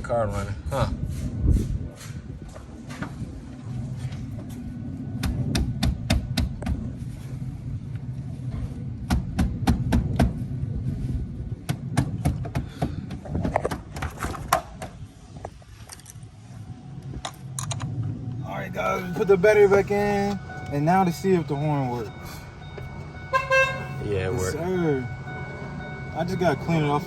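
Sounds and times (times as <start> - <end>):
low steady rumble: 2.4 - 12.0, 15.0 - 27.0.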